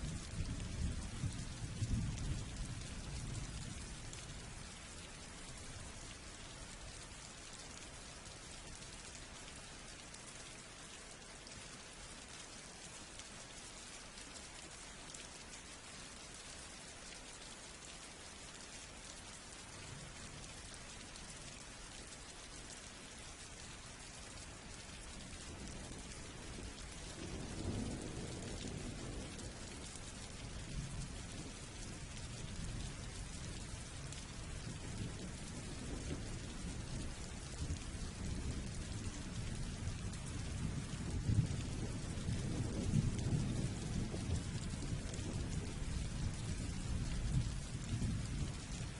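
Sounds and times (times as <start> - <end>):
steady rain falling: 0.0 - 48.9
rolling thunder rumbling: 25.8 - 30.0, 34.5 - 48.9.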